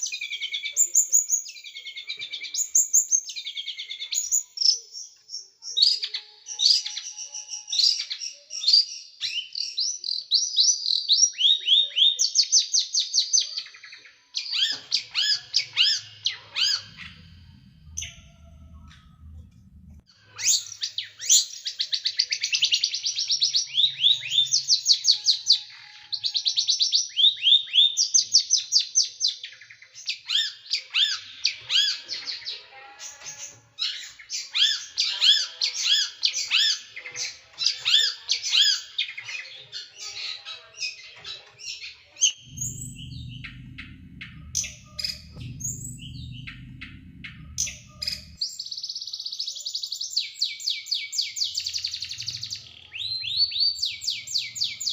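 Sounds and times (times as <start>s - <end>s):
bird trilling fast: 14.6s - 20.6s
low rumble: 15.8s - 20.1s, 42.4s - 48.4s.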